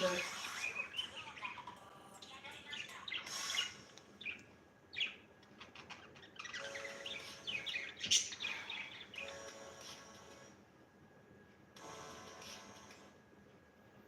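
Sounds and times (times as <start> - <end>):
budgerigar chirping and warbling: 0.0 - 9.4.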